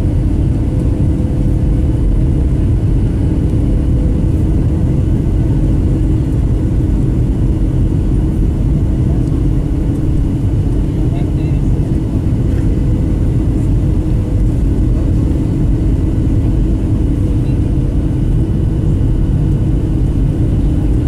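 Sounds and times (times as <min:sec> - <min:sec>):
airplane cabin engine rumble: 0:00.0 - 0:21.0.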